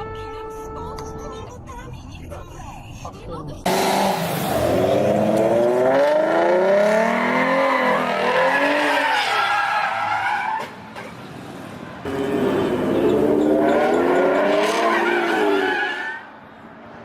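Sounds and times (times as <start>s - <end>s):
car engine revving: 3.6s - 9.2s, 12.0s - 15.8s
tires squealing: 3.7s - 16.4s.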